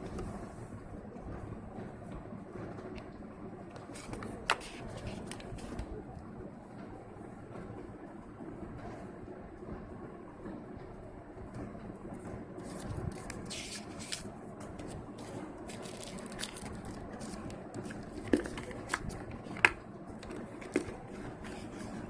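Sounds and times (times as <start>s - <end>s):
steady low hum: 0.0s - 22.0s
packaging rustling: 12.7s - 22.0s.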